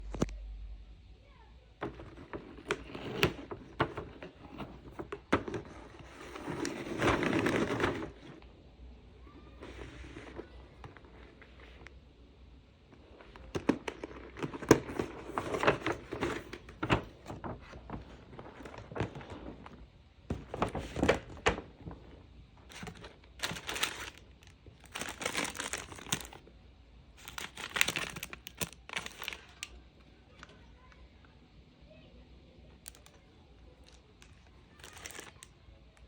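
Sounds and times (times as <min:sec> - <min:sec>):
packaging crinkling and rustling: 0:01.8 - 0:08.5, 0:09.6 - 0:12.0, 0:13.0 - 0:26.5, 0:27.2 - 0:29.8, 0:32.8 - 0:33.2, 0:33.8 - 0:35.5.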